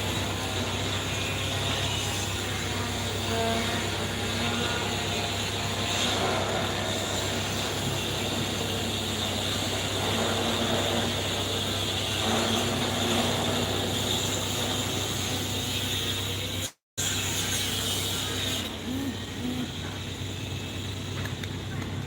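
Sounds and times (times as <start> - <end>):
excavator engine running: 18.2 - 22.0.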